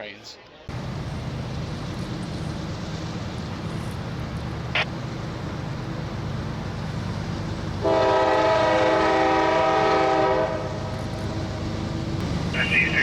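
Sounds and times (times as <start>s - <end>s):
low locomotive rumble: 0.7s - 13.0s
train air horn blast: 7.8s - 10.8s.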